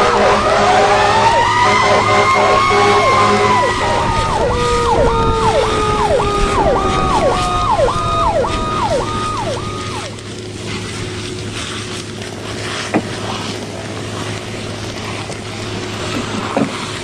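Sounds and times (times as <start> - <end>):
siren yelp: 0.0 - 10.2
siren wail: 0.0 - 10.4
steady low rumble: 0.0 - 17.0.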